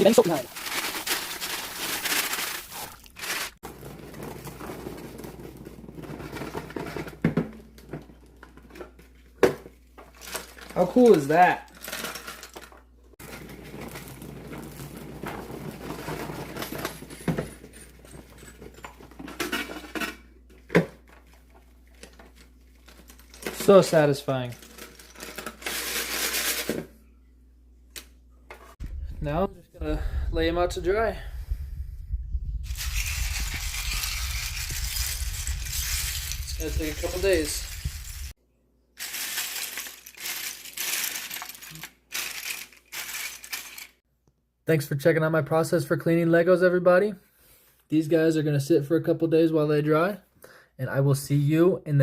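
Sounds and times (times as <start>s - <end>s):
plastic pieces clattering: 0.0s - 9.0s, 10.0s - 20.2s, 21.0s - 26.9s, 32.7s - 38.4s, 39.0s - 44.0s
plastic toy bricks rattling: 32.7s - 38.3s, 39.0s - 44.0s.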